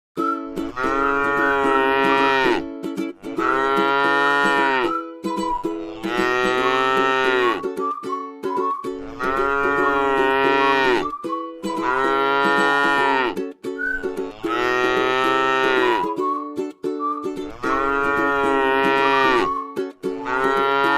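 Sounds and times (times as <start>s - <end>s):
cow mooing: 0.8s - 2.6s, 3.3s - 5.0s, 5.8s - 7.6s, 9.0s - 11.0s, 11.7s - 13.4s, 14.3s - 16.1s, 17.5s - 19.5s, 20.2s - 20.9s.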